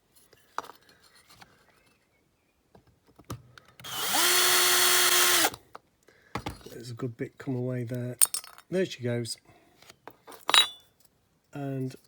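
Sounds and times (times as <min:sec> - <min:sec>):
small electric drill drilling: 0:03.8 - 0:05.6.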